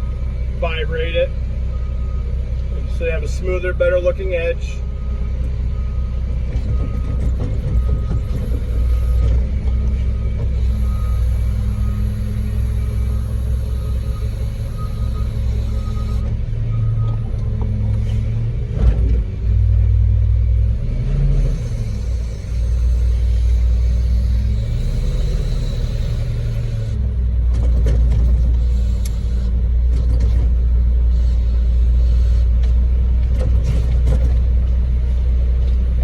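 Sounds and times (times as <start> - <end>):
diesel engine rumbling: 0.0 - 36.0.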